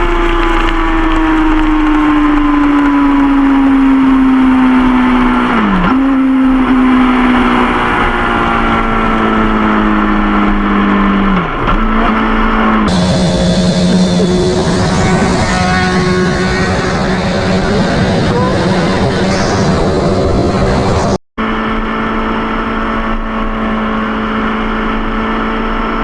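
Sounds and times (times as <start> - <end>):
motorcycle engine running at speed: 0.0 - 26.0
wind noise: 6.6 - 21.2.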